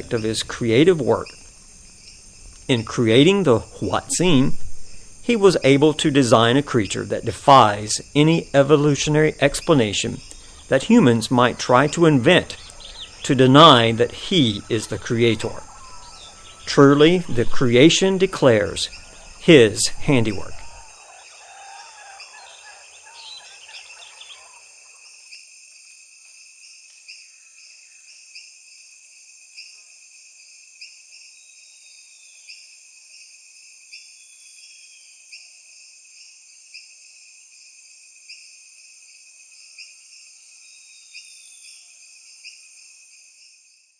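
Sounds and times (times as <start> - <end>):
insects trilling: 0.0 - 43.9
pulsing insect chirp: 0.0 - 43.9
birds calling in whistled glides: 3.6 - 25.2.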